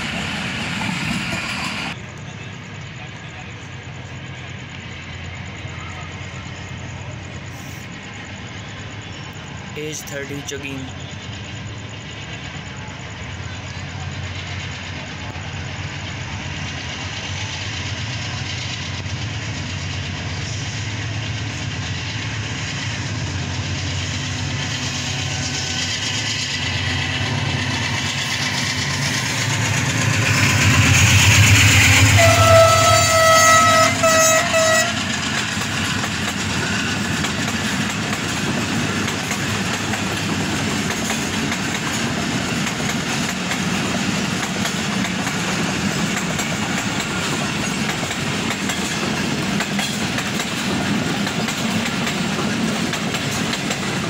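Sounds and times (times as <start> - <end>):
diesel locomotive rumbling: 0.0 - 54.0
train horn blast: 31.7 - 35.1.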